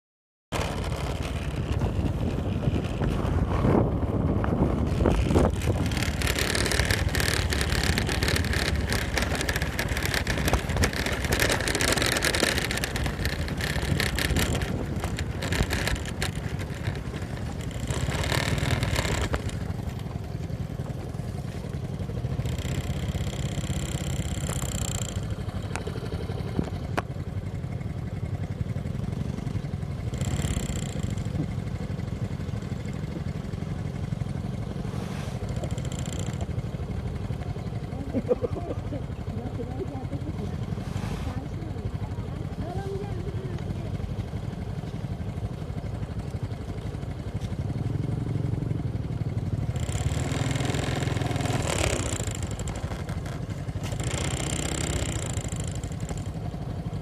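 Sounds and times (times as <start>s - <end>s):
motorcycle engine running: 0.5s - 57.0s
wind and road rushing: 0.6s - 21.6s, 34.6s - 36.6s, 40.7s - 41.8s.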